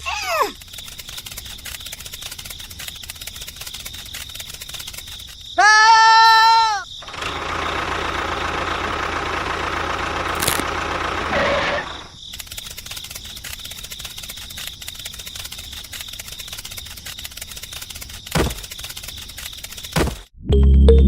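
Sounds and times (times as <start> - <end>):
fast ticking rattle: 0.4 - 5.5, 7.0 - 20.3
motor running: 7.0 - 18.8.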